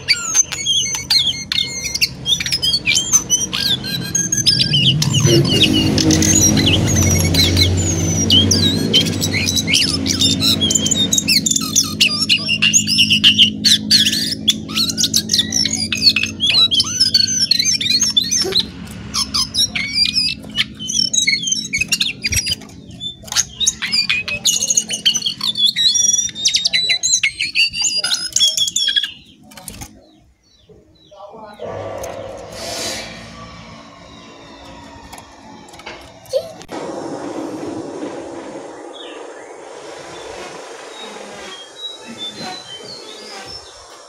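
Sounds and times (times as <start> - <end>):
bird chattering and squawking: 31.5 - 36.6.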